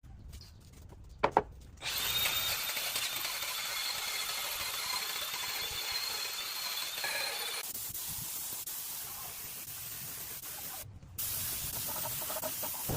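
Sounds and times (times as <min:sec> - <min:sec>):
power tool running: 0:01.8 - 0:07.6.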